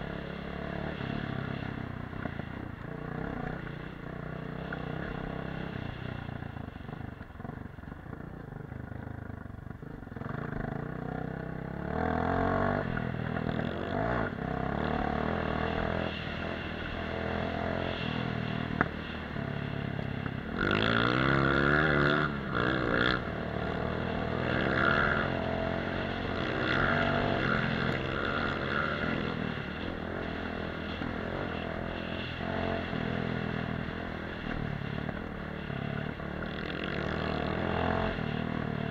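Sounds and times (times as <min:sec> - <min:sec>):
dirt bike engine revving: 0:10.2 - 0:19.0, 0:19.6 - 0:38.9.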